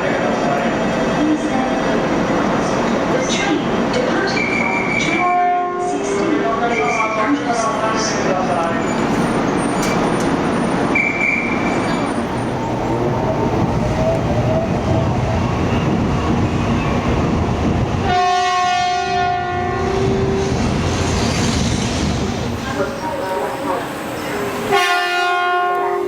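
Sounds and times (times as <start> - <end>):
train horn chord: 5.3 - 6.0, 18.1 - 20.3, 24.7 - 26.0.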